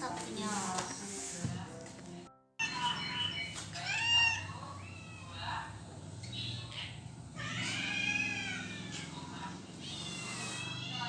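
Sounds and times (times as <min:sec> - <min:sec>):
cat meowing: 0:03.8 - 0:05.4, 0:07.4 - 0:11.0.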